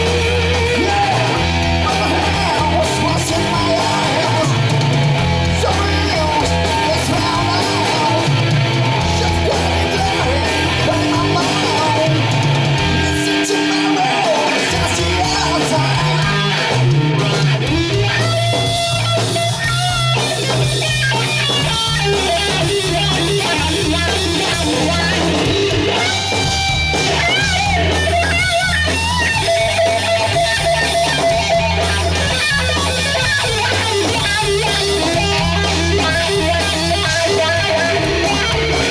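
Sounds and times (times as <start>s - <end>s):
rock band playing: 0.0s - 38.9s
lead guitar bending notes: 15.1s - 38.9s.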